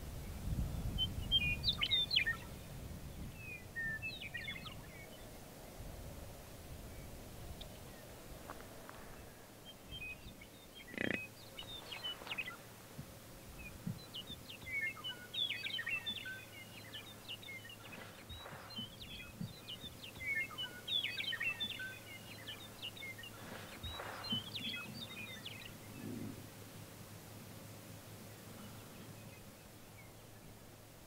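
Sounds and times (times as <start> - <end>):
songbirds chirping and singing: 0.9 - 5.4, 6.9 - 26.7.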